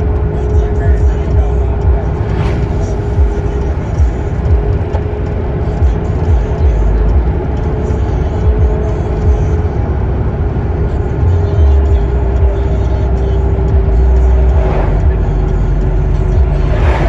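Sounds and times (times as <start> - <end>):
road vehicle rumble: 0.0 - 17.0
steady hum: 0.0 - 17.0.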